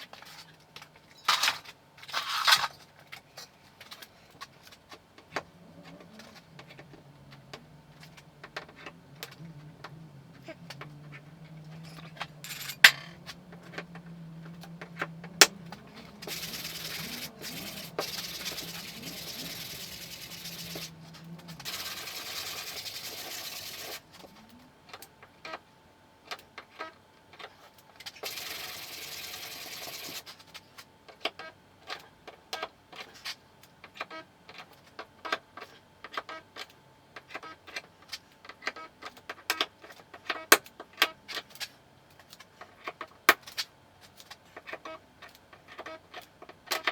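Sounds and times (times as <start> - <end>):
low steady hum: 2.7 - 26.3.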